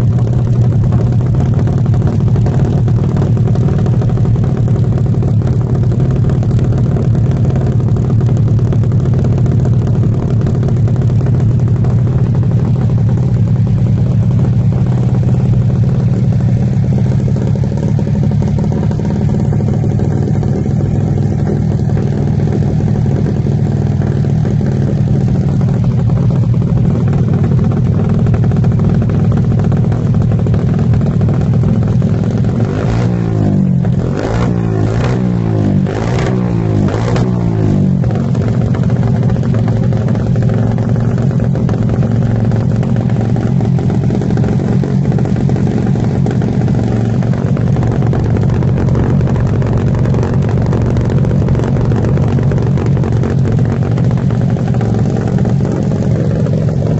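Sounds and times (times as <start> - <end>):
engine idling: 0.0 - 56.9
engine throttle blips: 0.0 - 56.9.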